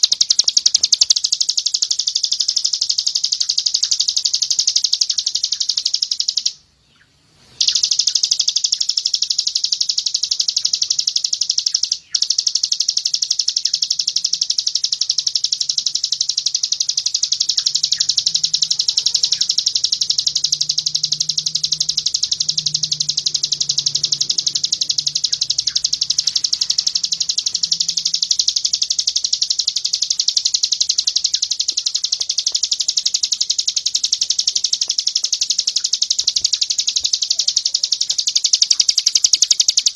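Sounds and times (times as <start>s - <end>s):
songbird fast high trill: 0.0s - 6.6s, 7.4s - 39.9s.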